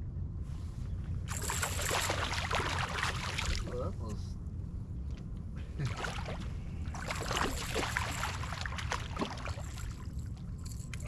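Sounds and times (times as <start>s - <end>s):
steady low rumble: 0.0s - 11.0s
water splashing and sloshing: 1.3s - 3.9s, 5.1s - 11.0s.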